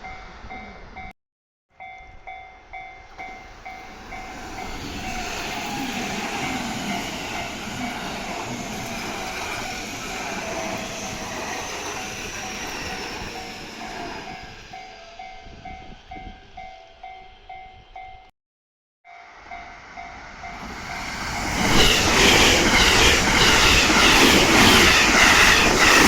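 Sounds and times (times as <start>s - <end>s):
train passing: 0.0s - 1.1s, 1.8s - 18.0s, 19.1s - 26.0s
crossing alarm electronic bell: 1.8s - 7.9s.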